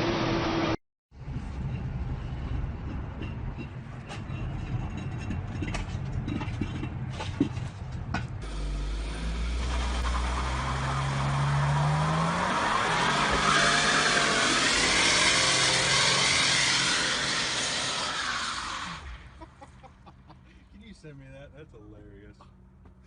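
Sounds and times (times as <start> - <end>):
vehicle engine rumbling: 0.0 - 23.0
scattered clicks and knocks: 2.4 - 8.4.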